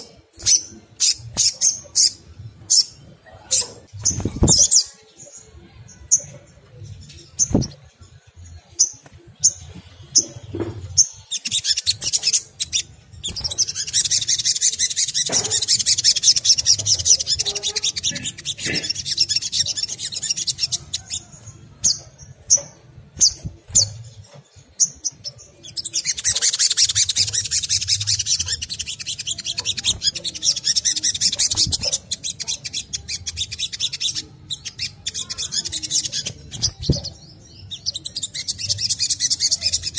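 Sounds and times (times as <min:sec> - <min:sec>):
bird twittering chatter: 0:00.0 - 0:39.9
bird chipping: 0:08.8 - 0:39.9.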